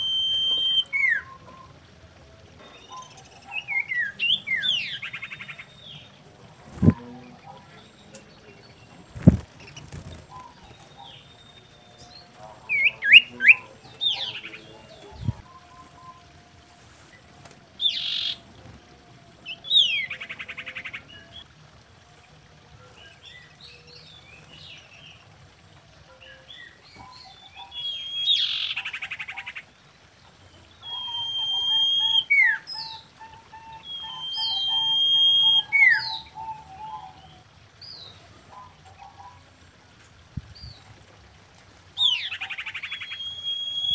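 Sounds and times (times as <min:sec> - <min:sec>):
long bird whistles: 0:00.0 - 0:01.8, 0:30.8 - 0:37.1, 0:42.0 - 0:43.9
bird chirping: 0:00.0 - 0:16.5, 0:17.8 - 0:21.5, 0:26.0 - 0:39.6, 0:41.9 - 0:43.9
buzzy bird trills: 0:17.8 - 0:18.8, 0:30.6 - 0:37.4.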